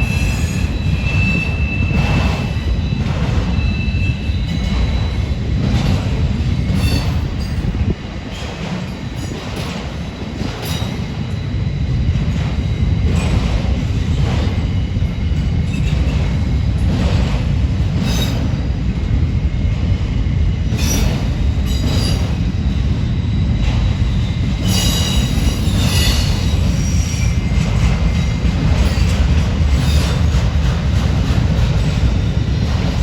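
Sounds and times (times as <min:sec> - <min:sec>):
wheel flanges squealing: 0:24.6 - 0:30.3.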